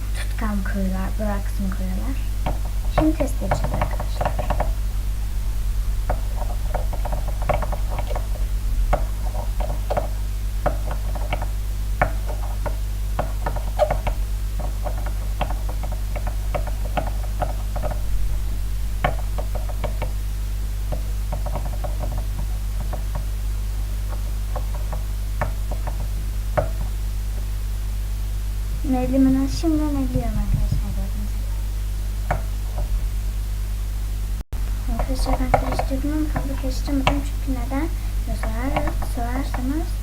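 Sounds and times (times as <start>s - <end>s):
steady low hum: 0.0s - 40.0s
scissors tapping a container: 35.0s - 37.3s.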